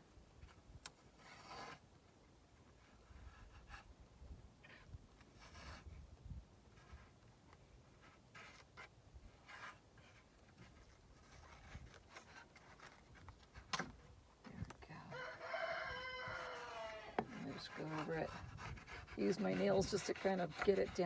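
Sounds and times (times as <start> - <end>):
rooster crowing: 15.1 - 17.2.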